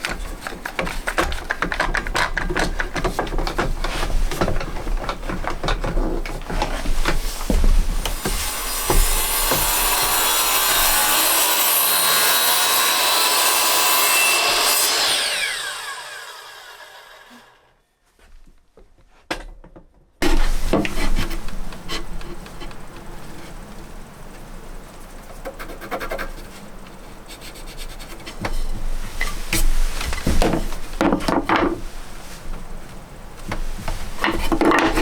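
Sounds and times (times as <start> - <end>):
power saw cutting wood: 7.5 - 17.7
wood knocked and handled: 28.2 - 32.7.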